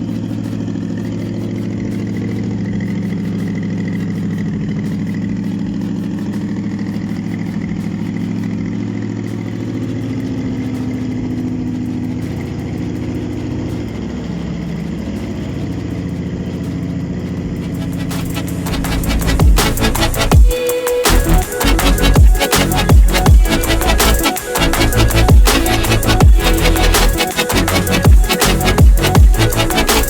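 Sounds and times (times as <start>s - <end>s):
car engine idling: 0.0s - 20.5s.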